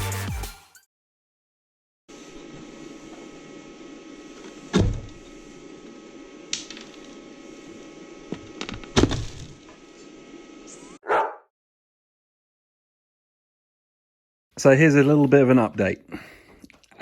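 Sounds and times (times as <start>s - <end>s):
electrical hum: 2.1s - 11.0s.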